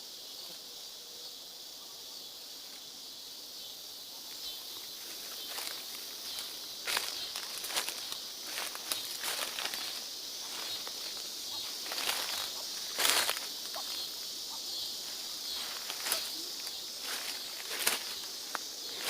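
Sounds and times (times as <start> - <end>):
high-pitched insect drone: 0.0 - 19.0
leaves and stalks rustling: 4.1 - 19.0
footsteps: 5.0 - 19.0
crackles: 5.2 - 14.1, 15.0 - 19.0.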